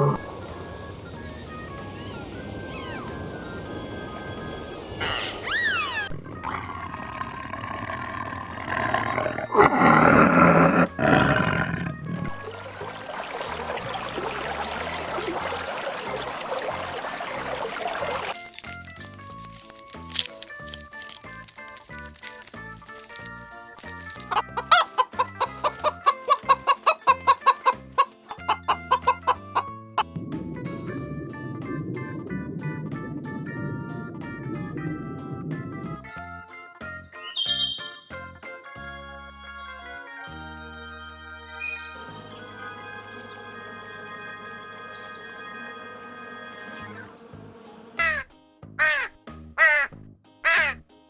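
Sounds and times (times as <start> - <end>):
background music: 0.0 - 51.0
high rising and falling cry: 4.4 - 7.8
animal's long rough call: 5.1 - 12.0
chicken clucking: 23.9 - 29.7.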